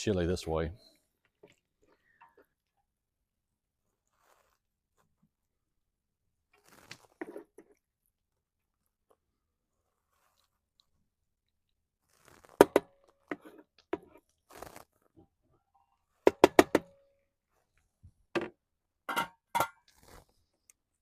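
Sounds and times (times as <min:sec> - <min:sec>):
scraping and rustling: 0:06.6 - 0:07.7, 0:12.0 - 0:15.2
cookware clanking: 0:19.1 - 0:19.8.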